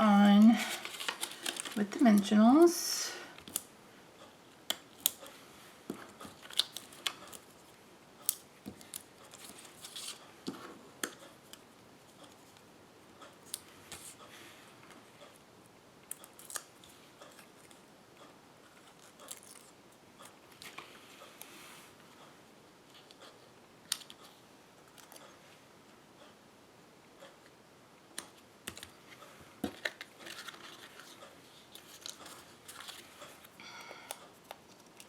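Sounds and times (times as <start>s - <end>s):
paper card clicks and rustles: 0.3s - 2.3s, 6.1s - 7.5s, 8.3s - 11.6s, 28.2s - 33.5s.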